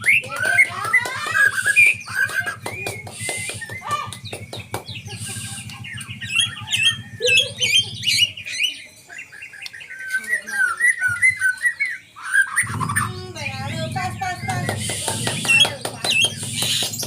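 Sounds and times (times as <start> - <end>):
bird singing whistled notes: 1.3 - 17.0
low steady hum: 12.6 - 17.0.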